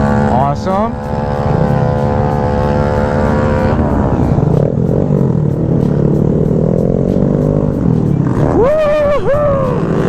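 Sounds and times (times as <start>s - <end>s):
motorcycle engine running: 0.0s - 10.0s
rumble of wind and road: 0.0s - 10.0s.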